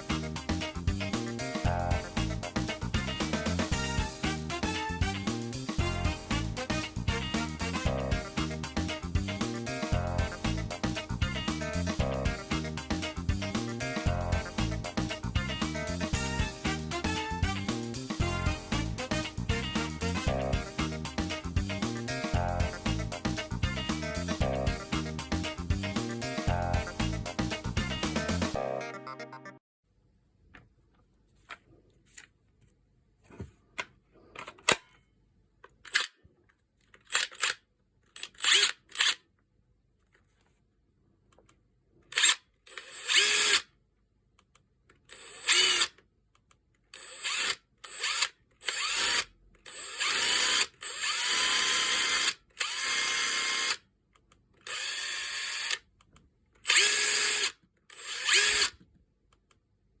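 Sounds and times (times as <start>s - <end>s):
impact driver whining: 56.7s - 58.7s.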